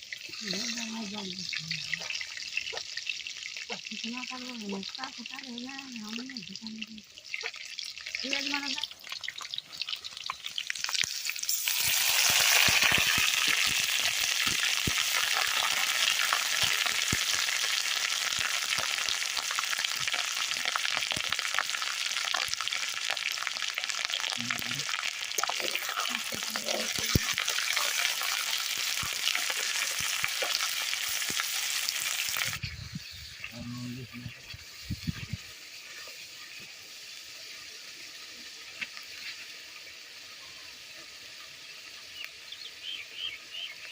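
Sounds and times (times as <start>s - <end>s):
food sizzling in hot oil: 0.0s - 43.9s
stirring in a pan: 19.9s - 32.8s.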